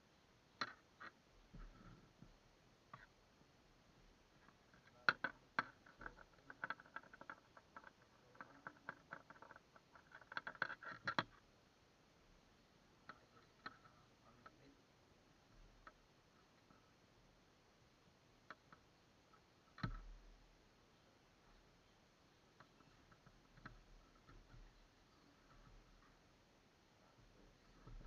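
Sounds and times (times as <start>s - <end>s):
small clicks and taps: 0.6s - 1.9s, 4.4s - 11.4s, 13.0s - 14.7s, 18.4s - 20.1s, 22.5s - 26.2s.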